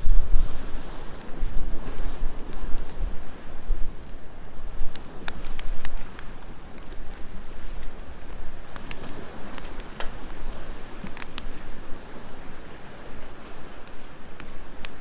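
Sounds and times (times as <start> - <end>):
wood fire crackling: 0.0 - 15.0
ocean waves: 0.3 - 15.0.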